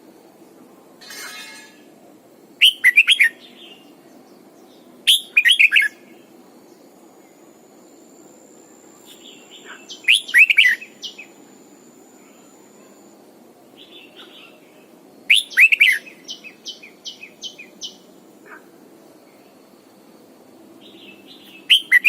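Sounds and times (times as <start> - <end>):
bird singing sweeping whistles: 2.6 - 3.8, 5.1 - 6.0, 9.1 - 11.4, 15.3 - 18.0, 20.8 - 22.0.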